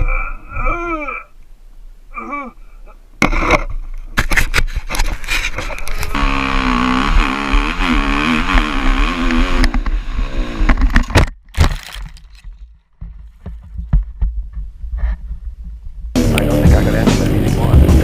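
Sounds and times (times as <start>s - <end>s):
motorcycle engine running: 6.0s - 11.0s
sharp knocks and clatter: 10.7s - 16.2s
low rumble: 11.6s - 18.0s.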